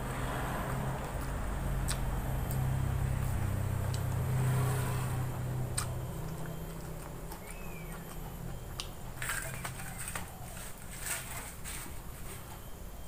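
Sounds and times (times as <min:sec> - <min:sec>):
low engine drone: 0:00.0 - 0:13.0
person chewing: 0:01.0 - 0:04.4, 0:05.7 - 0:10.8.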